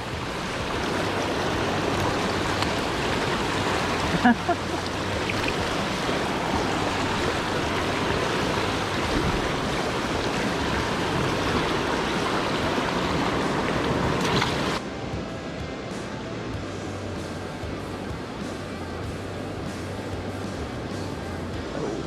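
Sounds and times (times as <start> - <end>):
turbulent creek water rushing: 0.0 - 14.8.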